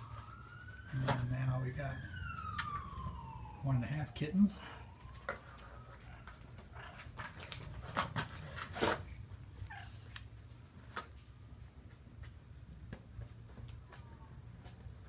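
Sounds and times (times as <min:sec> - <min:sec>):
kittens scratching cardboard box: 0:05.1 - 0:11.1.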